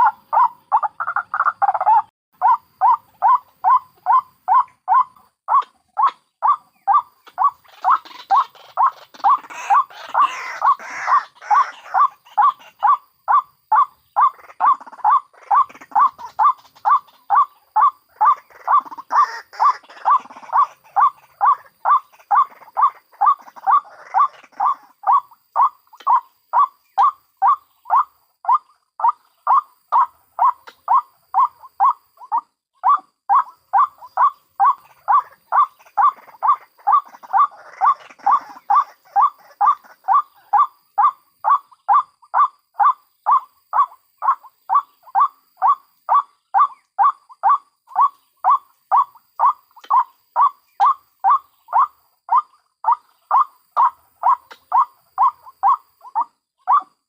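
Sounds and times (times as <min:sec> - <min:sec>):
faint bird cackling: 0:00.0 - 0:57.0.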